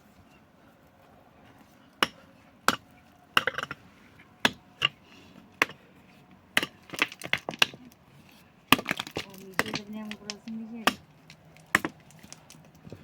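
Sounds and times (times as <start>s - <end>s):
clatter of small knocks: 6.6s - 8.0s, 8.7s - 13.0s.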